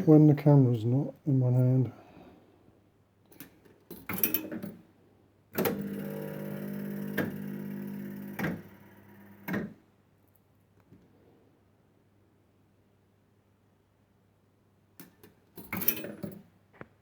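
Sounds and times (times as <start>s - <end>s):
fruit machine clicks: 5.6s - 9.7s.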